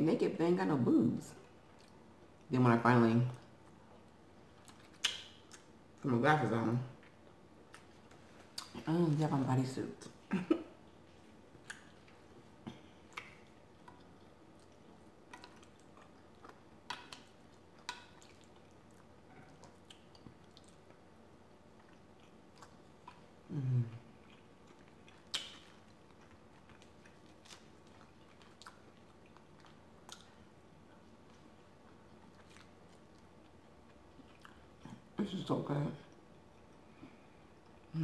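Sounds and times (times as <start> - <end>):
mouth chewing wet smacks: 1.7 - 2.5, 3.6 - 5.8, 11.1 - 21.0, 21.7 - 35.1
low voice hum: 23.4 - 24.1.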